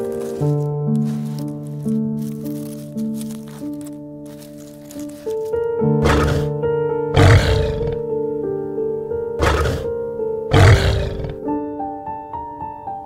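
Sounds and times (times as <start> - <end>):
soft piano music: 0.0 - 13.0
lioness roaring: 6.0 - 8.0, 9.4 - 9.9, 10.5 - 11.4.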